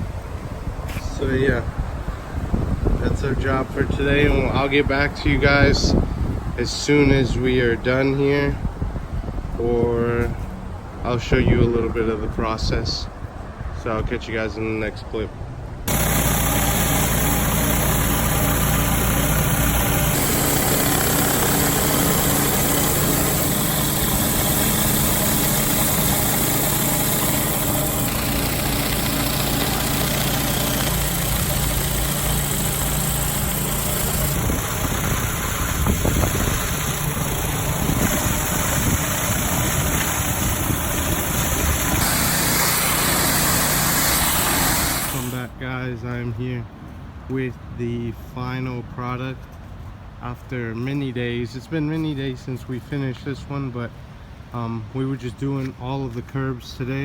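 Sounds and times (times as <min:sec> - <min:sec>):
engine hum: 0:15.5 - 0:46.8
high-pressure water spraying: 0:15.9 - 0:45.4.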